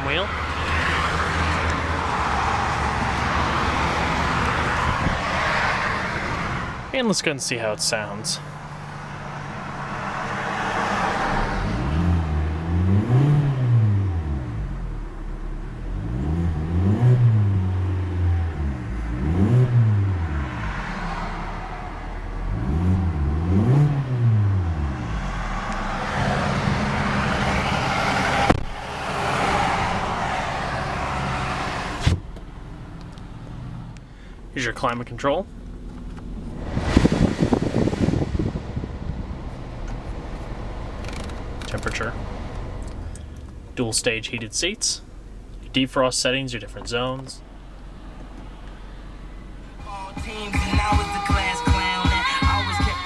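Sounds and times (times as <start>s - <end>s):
car engine revving and idling: 0.0s - 53.0s
sharp clicks: 41.0s - 42.0s.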